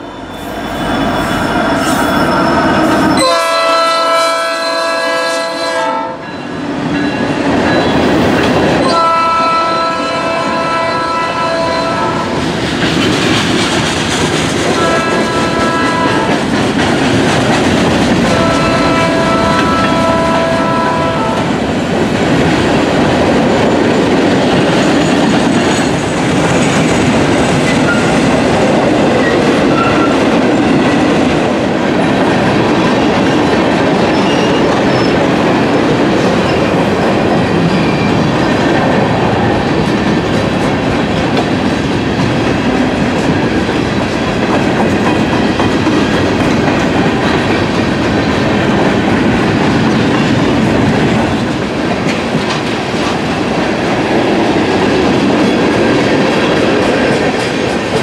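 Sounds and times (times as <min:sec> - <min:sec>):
high wheel squeals: 0:00.1 - 0:03.3
train wheels clacking on rails: 0:05.9 - 0:58.0.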